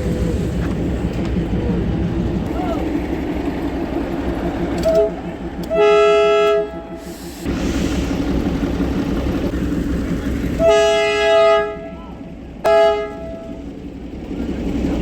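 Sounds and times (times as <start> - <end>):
station background noise: 0.0 - 15.0
train horn tooting: 4.8 - 7.1, 10.6 - 13.8.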